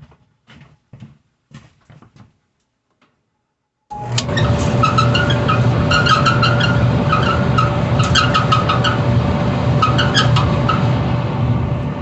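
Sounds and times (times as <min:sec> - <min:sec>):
dryer motor hum: 0:03.9 - 0:12.0
squeaks and clicks: 0:04.1 - 0:09.1, 0:09.8 - 0:10.9.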